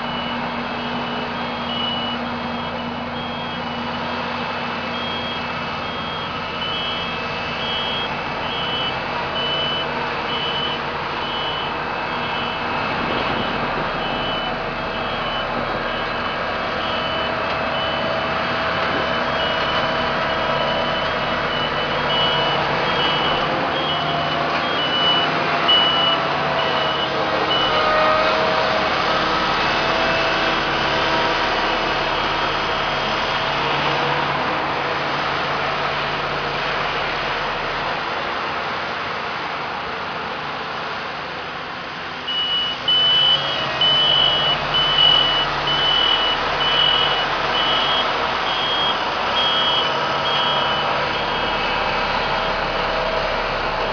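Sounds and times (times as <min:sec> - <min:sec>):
reversing alarm beeping: 0:00.0 - 0:28.5, 0:42.3 - 0:53.3
heavy machinery running: 0:00.0 - 0:39.6, 0:41.2 - 0:53.9.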